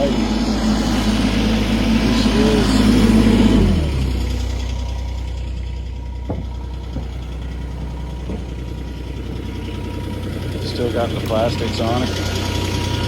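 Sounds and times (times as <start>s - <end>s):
engine idling: 0.0s - 13.0s
faint knocks: 6.2s - 9.6s.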